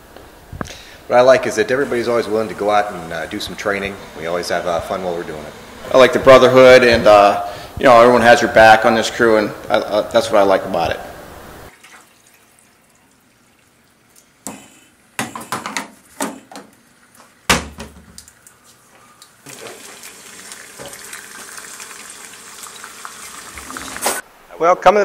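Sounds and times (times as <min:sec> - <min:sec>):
kitchen knocks and clinks: 0:15.2 - 0:16.7
eggs sizzling in a pan: 0:18.3 - 0:24.2.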